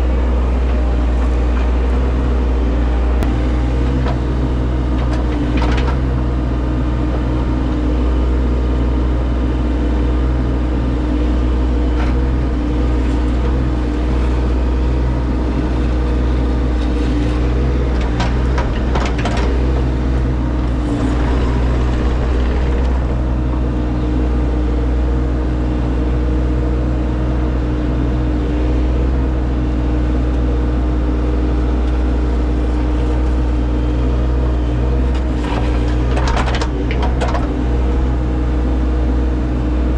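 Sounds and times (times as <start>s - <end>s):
machine engine under load: 15.9s - 24.5s, 35.2s - 38.2s
machine knocks and clanks: 17.8s - 23.6s, 35.4s - 37.6s.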